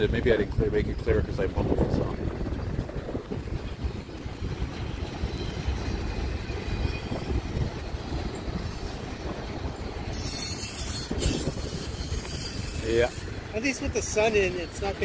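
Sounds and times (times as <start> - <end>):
freight train rumbling on rails: 0.0 - 15.0
faint high wheel squeals: 4.4 - 15.0.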